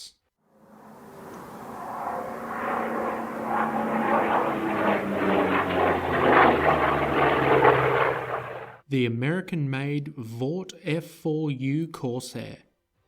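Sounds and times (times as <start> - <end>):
propeller plane engine drone: 0.5 - 8.8.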